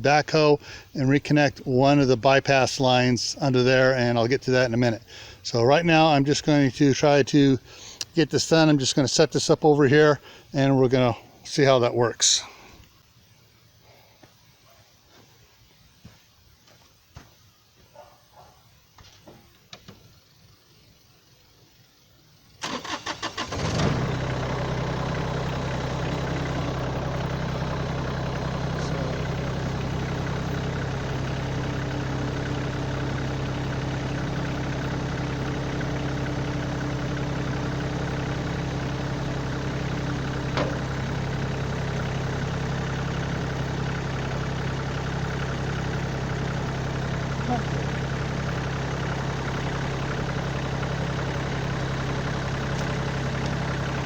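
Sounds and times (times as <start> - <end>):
diesel engine idling: 0.0 - 8.8, 22.6 - 54.0
starter motor cranking: 22.6 - 54.0.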